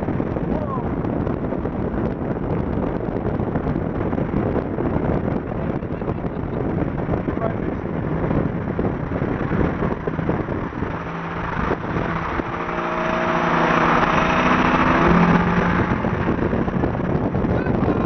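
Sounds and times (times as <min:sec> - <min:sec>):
car engine under load: 0:00.0 - 0:18.0
road and wind noise: 0:00.0 - 0:18.0.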